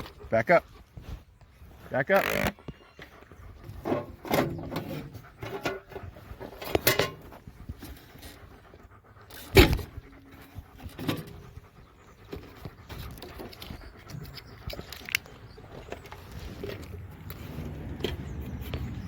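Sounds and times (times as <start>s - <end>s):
dog panting: 0.0s - 19.0s
small rustles and clicks: 12.2s - 19.0s.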